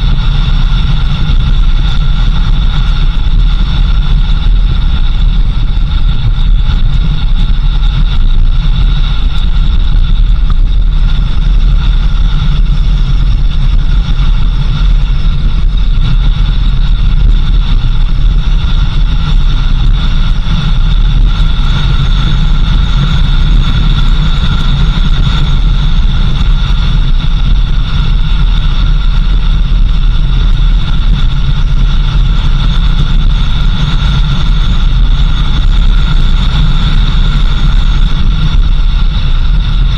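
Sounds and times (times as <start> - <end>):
constant high whine: 0.0 - 39.9
vehicle engine and road rumble: 0.0 - 39.9.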